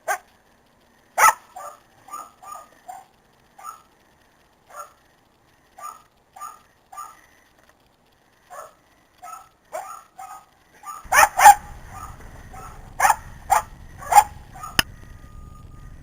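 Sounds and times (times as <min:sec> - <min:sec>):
dog barking: 0:00.0 - 0:00.3, 0:01.2 - 0:03.9, 0:04.7 - 0:05.0, 0:05.8 - 0:07.2, 0:08.5 - 0:14.9.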